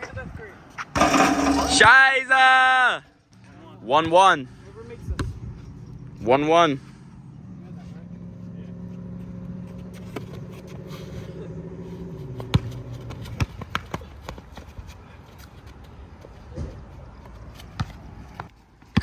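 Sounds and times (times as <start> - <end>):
basketball bouncing: 1.0 - 1.9.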